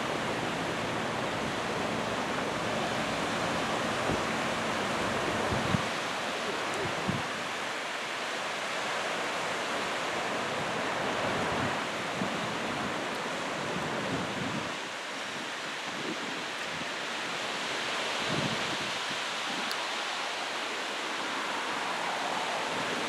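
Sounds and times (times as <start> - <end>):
wind buffeting microphone: 0.1 - 7.5.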